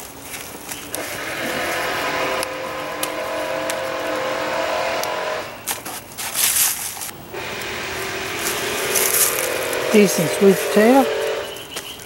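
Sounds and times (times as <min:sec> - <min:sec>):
loud rustling scrape: 0:00.2 - 0:11.8
motor engine droning: 0:00.9 - 0:05.8, 0:07.2 - 0:11.9.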